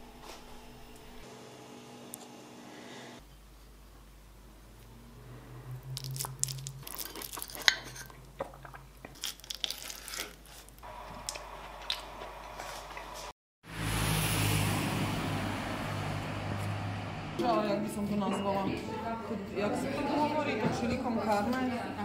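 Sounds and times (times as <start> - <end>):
street traffic noise: 4.3 - 9.0, 10.8 - 22.0
crunchy chewing: 6.0 - 13.3.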